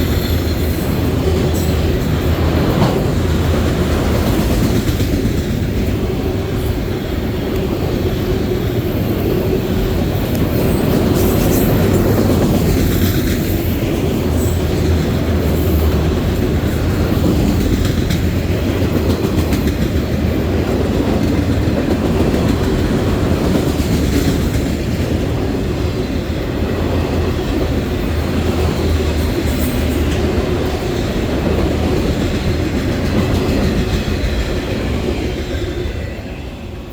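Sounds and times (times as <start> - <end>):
train wheels rumbling on rail: 0.0 - 36.9
clicking over rail joints: 1.2 - 5.5.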